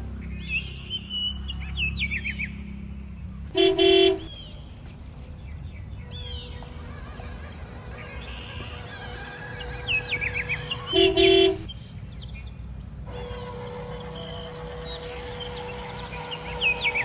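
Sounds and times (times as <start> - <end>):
bird-like chirps: 0.2 - 17.0
steady hum: 3.5 - 17.0
short horn toot: 3.6 - 4.3, 10.8 - 11.7.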